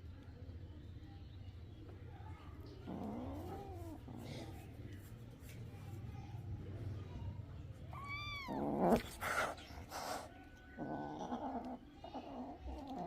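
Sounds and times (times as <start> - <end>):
kitten meowing: 8.0 - 9.0.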